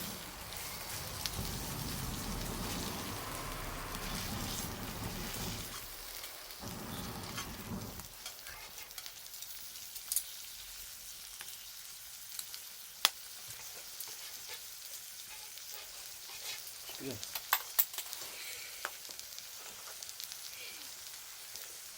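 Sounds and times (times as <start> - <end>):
low rumble: 0.0 - 8.1
wood fire crackling: 0.0 - 21.9.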